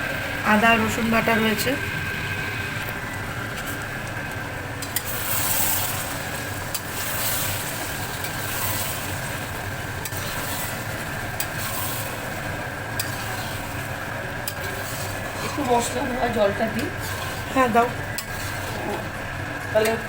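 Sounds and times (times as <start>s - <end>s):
potatoes sizzling in a pan: 4.8s - 20.0s.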